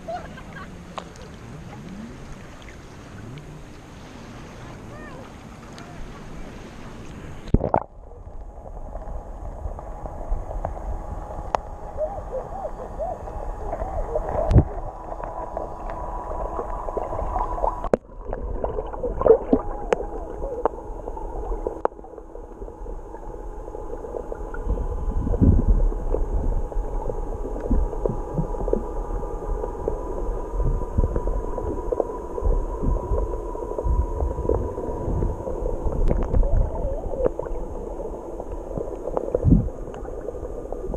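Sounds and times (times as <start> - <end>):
faint steady hum: 0.0 - 40.9
underwater gurgling: 0.0 - 40.9
low rumbling thumps: 24.2 - 29.1, 29.7 - 39.9.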